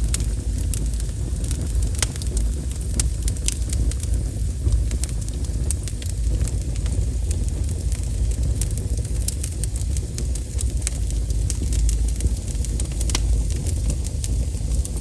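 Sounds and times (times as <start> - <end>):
wood fire crackling: 0.0 - 15.0
low rumble: 10.6 - 15.0.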